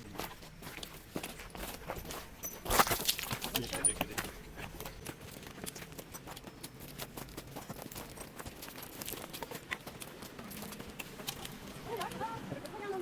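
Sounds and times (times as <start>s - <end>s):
footsteps on loose stones: 0.0s - 13.0s.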